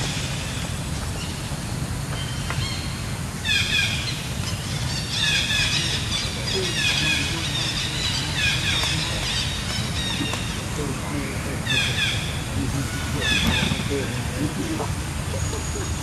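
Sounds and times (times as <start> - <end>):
bird falling chirps: 13.0 - 14.1.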